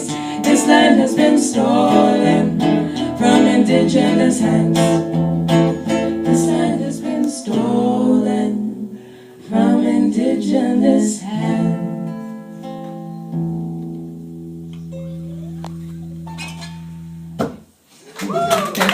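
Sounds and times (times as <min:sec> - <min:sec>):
person singing: 0:00.0 - 0:05.1, 0:05.7 - 0:12.2
strummed acoustic guitar: 0:00.0 - 0:07.9.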